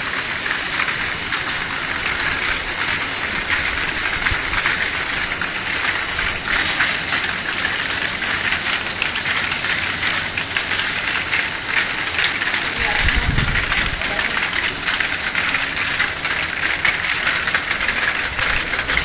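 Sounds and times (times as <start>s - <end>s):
vial washing machine hissing: 0.0s - 19.0s.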